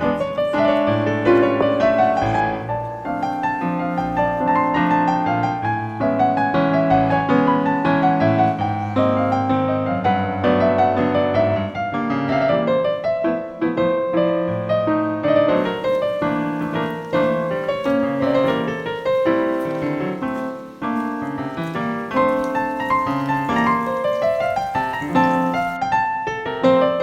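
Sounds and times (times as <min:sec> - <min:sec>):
solo piano music: 0:00.0 - 0:27.0.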